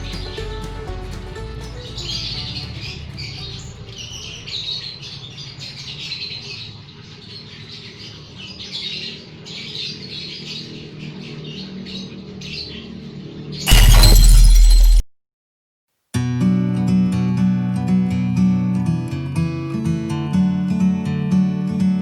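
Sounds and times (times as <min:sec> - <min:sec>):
birds squawking and chirping: 0:02.0 - 0:13.4.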